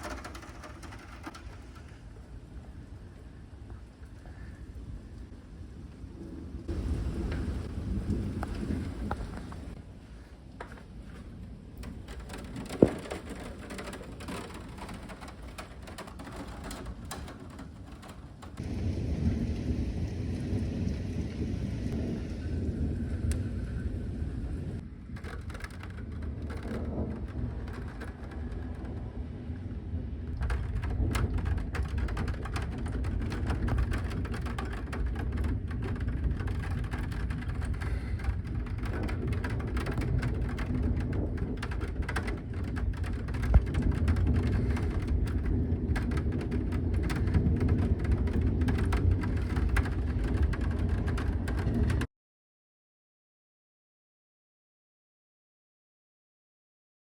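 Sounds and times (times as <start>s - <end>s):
deep low rumble: 0.0s - 9.8s, 18.6s - 52.1s
raindrops on hard surface: 0.0s - 52.1s.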